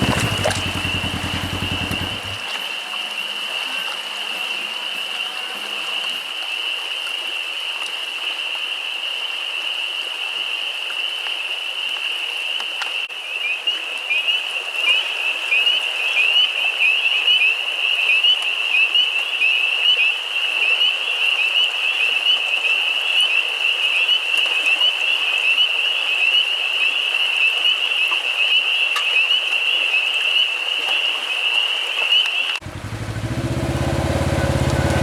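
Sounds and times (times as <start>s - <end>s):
engine idling: 0.0s - 2.5s, 32.6s - 35.0s
chorus of frogs peeping: 0.0s - 3.5s.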